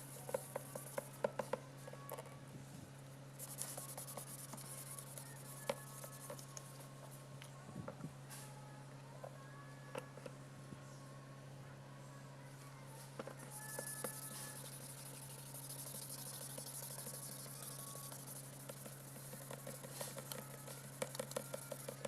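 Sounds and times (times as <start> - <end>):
sandpaper rubbing on plastic: 3.4 - 6.5, 13.6 - 22.0.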